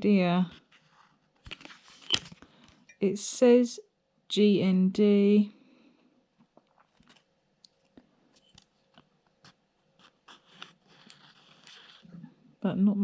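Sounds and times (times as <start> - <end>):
plastic parts scraping rustle: 8.3 - 12.1.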